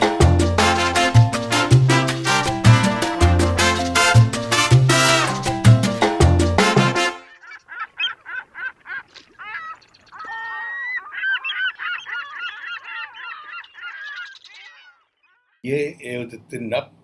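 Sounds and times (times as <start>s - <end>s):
flock of birds calling: 7.3s - 15.6s.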